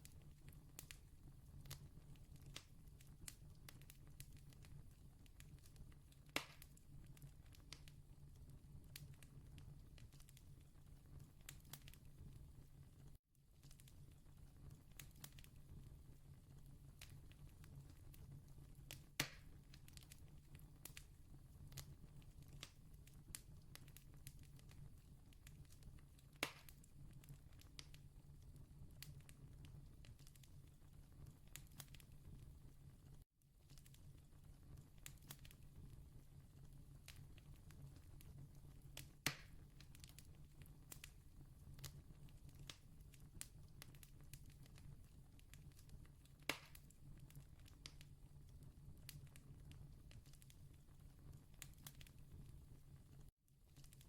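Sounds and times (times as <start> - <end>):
campfire crackling and popping: 0.0 - 8.0, 8.7 - 12.4, 13.6 - 32.5, 33.6 - 54.0
campfire crackling: 17.0 - 21.1.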